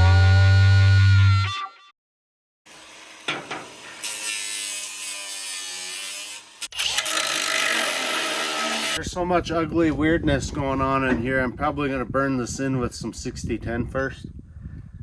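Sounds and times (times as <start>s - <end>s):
angle grinder grinding steel: 2.7s - 9.0s.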